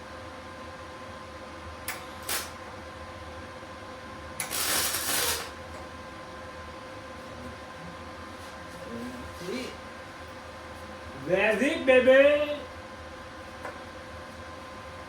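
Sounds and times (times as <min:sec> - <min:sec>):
steady hum: 0:00.0 - 0:15.0
welder arc crackling: 0:02.2 - 0:02.6, 0:04.4 - 0:05.6.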